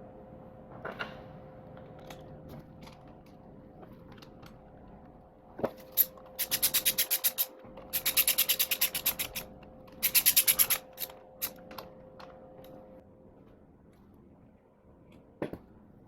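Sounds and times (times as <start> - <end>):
rasping clicks: 5.9 - 11.9.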